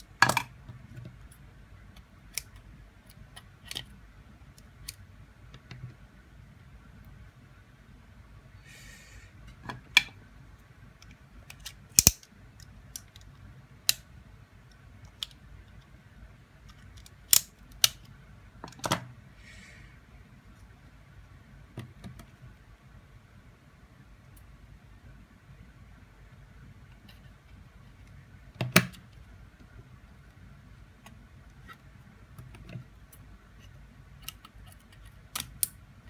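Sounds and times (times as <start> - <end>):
plastic parts and tools clicking: 11.0 - 14.0.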